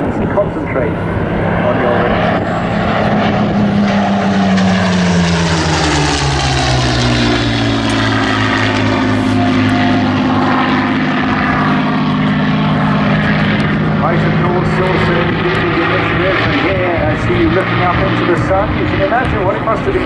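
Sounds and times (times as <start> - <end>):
propeller planes droning overhead: 0.0 - 20.0.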